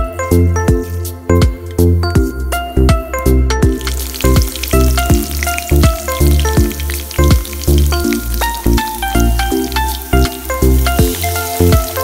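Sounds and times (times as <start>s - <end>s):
background music with steady beat: 0.0s - 12.0s
oil sizzling in a pan: 3.6s - 12.0s.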